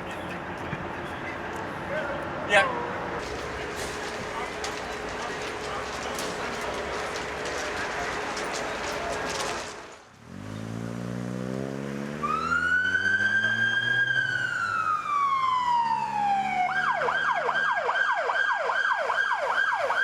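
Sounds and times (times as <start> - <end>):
vehicle engine revving: 4.6 - 14.7.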